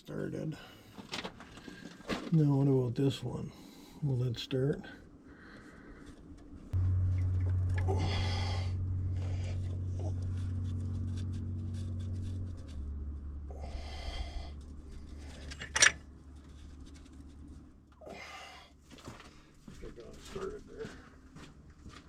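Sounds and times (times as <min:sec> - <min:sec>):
tractor engine running: 0:06.7 - 0:18.0.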